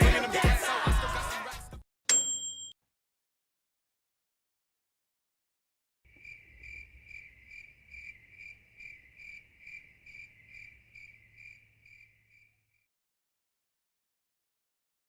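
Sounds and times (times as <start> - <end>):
cricket chirping: 6.1 - 12.9.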